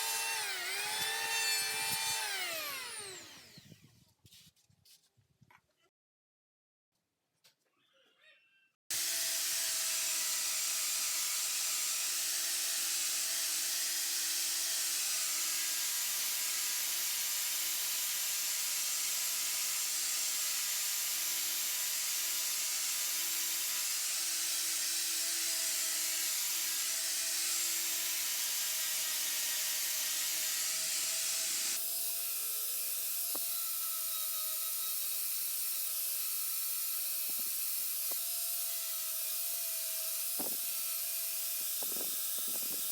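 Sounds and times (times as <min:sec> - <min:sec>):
power tool hissing: 0:00.0 - 0:03.7.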